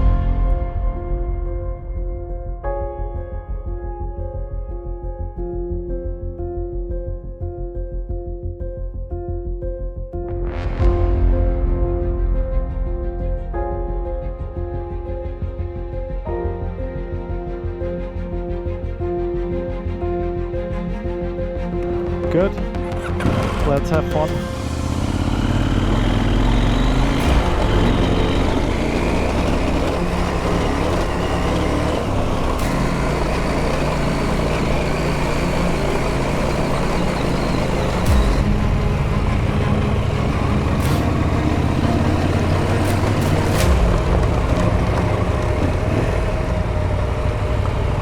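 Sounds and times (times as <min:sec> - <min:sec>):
motorcycle engine running: 0:21.6 - 0:48.0
wind and road noise: 0:21.6 - 0:48.0.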